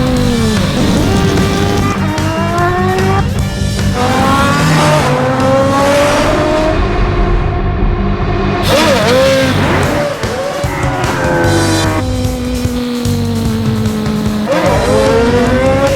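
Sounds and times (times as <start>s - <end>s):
music with steady beat: 0.0s - 6.7s, 8.6s - 15.9s
car engine revving hard: 0.0s - 15.9s
tyre squeal: 8.6s - 15.9s.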